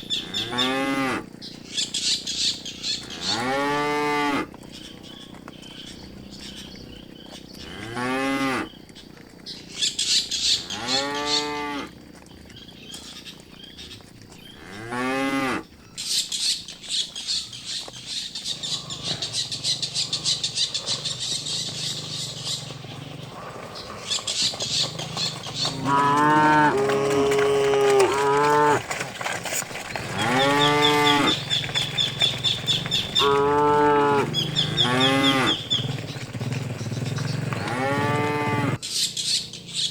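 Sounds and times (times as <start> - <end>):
cattle mooing: 0.0 - 1.4, 2.5 - 8.8, 10.4 - 12.0, 14.5 - 15.7, 18.4 - 29.1, 29.7 - 38.8.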